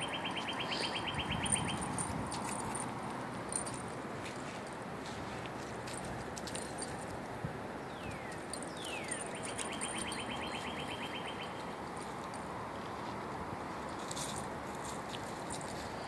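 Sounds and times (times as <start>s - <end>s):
songbird whistles and trill: 0.0s - 2.0s, 7.9s - 11.6s
outdoor background hiss: 0.0s - 16.0s.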